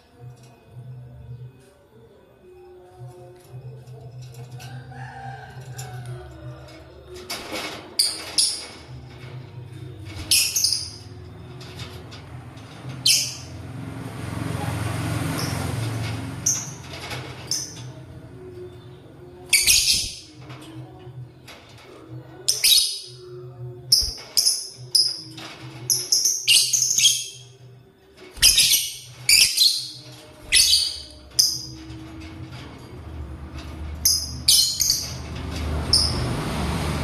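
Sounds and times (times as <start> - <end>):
lovebirds chirping: 28.4 - 31.7.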